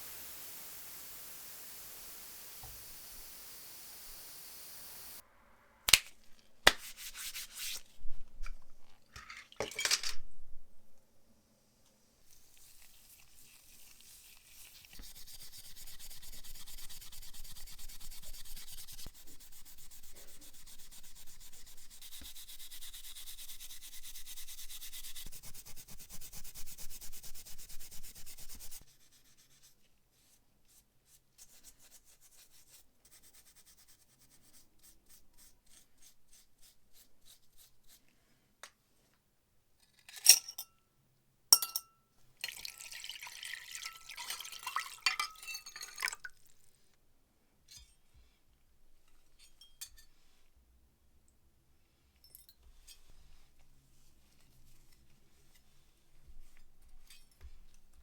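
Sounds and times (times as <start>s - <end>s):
sharp metallic clinks: 41.6s - 42.0s.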